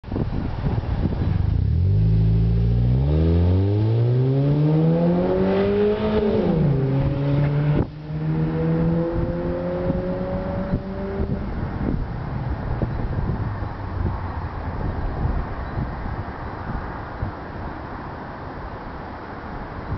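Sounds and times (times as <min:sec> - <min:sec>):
car engine accelerating: 0:01.2 - 0:12.0.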